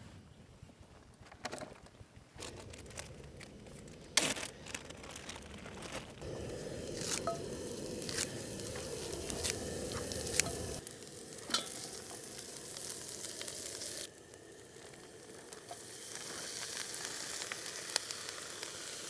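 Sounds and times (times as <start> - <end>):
onions sizzling in oil: 6.2 - 19.0.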